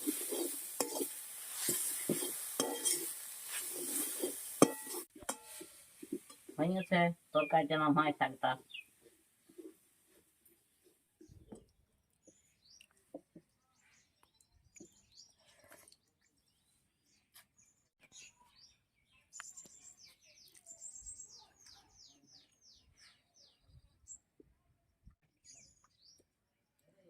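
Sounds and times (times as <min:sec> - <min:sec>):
faint birdsong: 0:08.6 - 0:09.8, 0:10.4 - 0:27.0.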